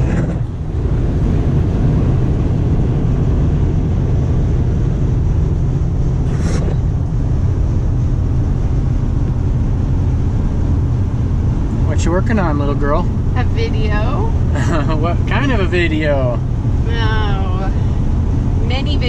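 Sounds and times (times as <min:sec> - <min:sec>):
road and engine noise in truck cab: 0:00.0 - 0:19.0.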